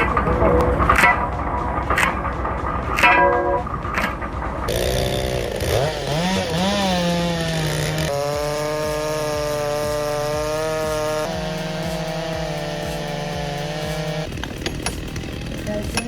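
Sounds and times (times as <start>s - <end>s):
chainsaw engine revving: 4.6s - 16.0s.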